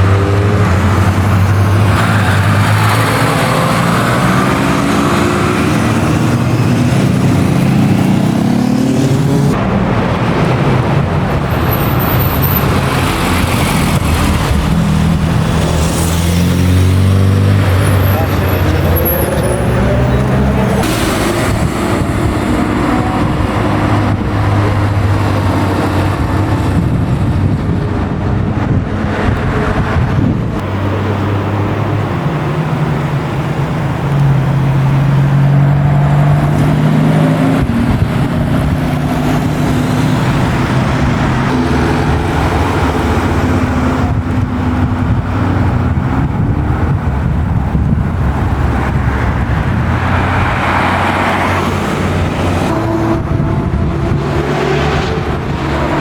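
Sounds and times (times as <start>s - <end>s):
car engines running at low revs: 20.1s - 51.1s.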